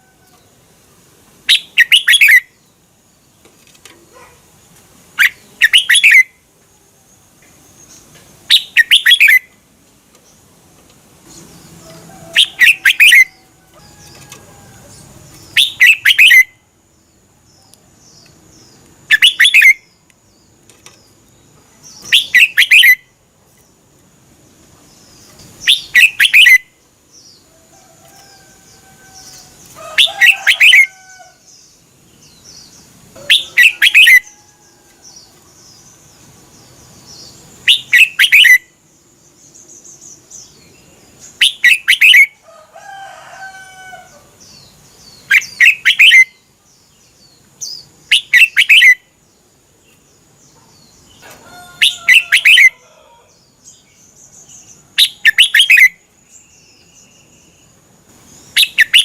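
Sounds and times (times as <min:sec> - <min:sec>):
bird singing short phrases: 0:21.7 - 0:23.1.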